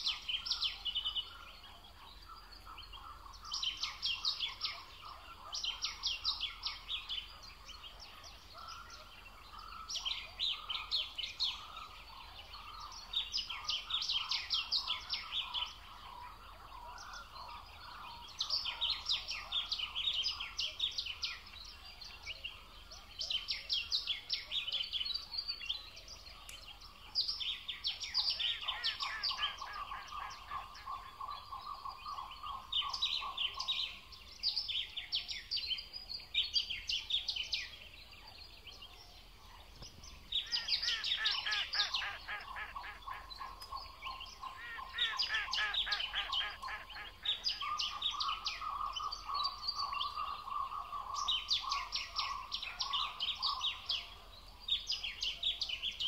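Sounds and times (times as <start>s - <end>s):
songbird singing rapid high notes: 40.1s - 50.2s.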